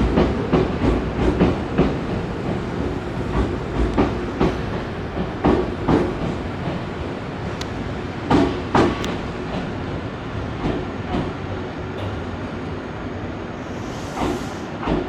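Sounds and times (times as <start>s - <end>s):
train wheels clacking over rail joints: 0.0s - 6.8s, 8.2s - 9.8s, 10.6s - 12.4s, 14.2s - 15.0s
train rumbling: 0.0s - 15.0s.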